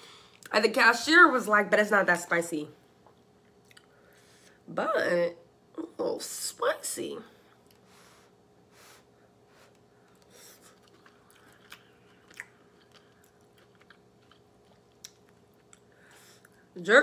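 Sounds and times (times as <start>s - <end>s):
faint steady hum: 0.0s - 17.0s
faint chewing: 3.0s - 4.0s, 9.6s - 16.7s.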